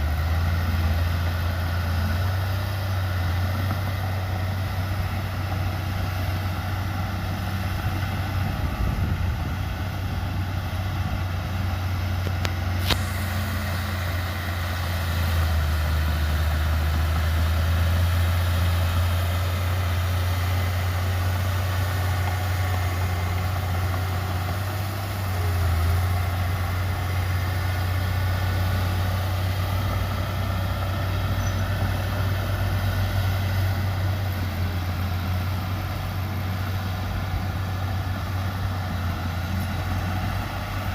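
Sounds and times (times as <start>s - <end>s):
diesel engine droning: 0.0s - 40.9s.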